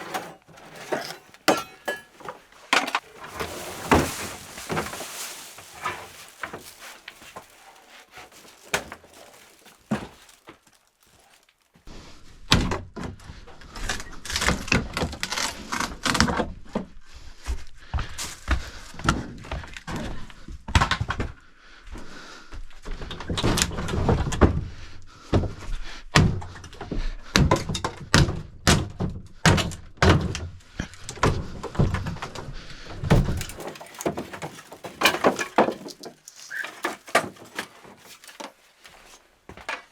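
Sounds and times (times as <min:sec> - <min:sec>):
debris thudding and clattering: 0:00.0 - 0:11.4, 0:33.1 - 0:39.9.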